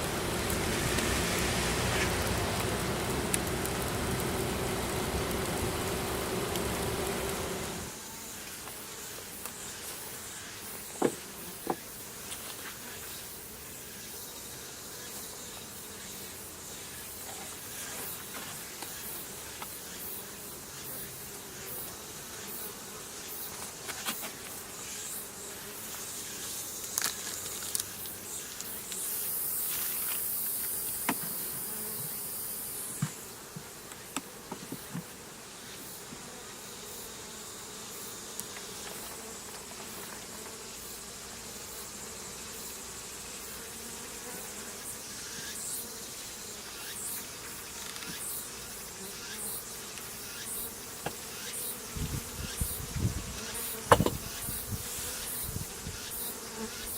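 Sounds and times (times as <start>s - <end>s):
loud hiss: 0.0s - 8.0s
bee swarm buzzing: 0.0s - 13.4s, 19.0s - 56.9s.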